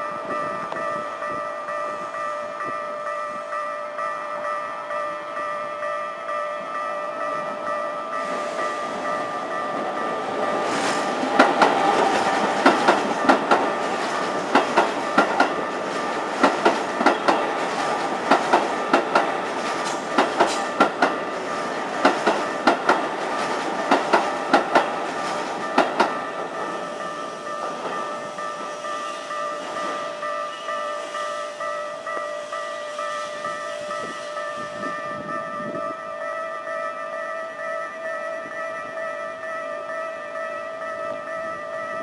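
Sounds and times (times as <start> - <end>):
rumble of train running gear: 7.2 - 30.4
train wheels clacking over rail joints: 8.2 - 30.0.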